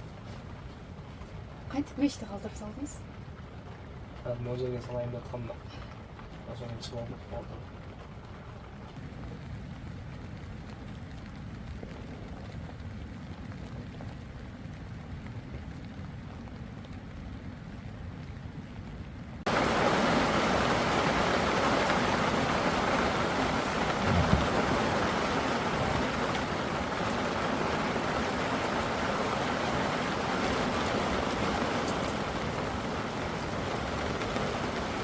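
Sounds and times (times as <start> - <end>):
heavy rain pouring: 0.0 - 35.0
low thump: 24.0 - 24.8.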